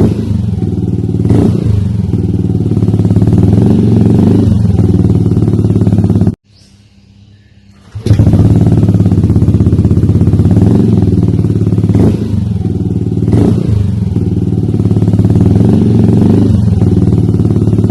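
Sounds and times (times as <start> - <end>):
scooter engine running: 0.0 - 6.4, 7.7 - 17.9.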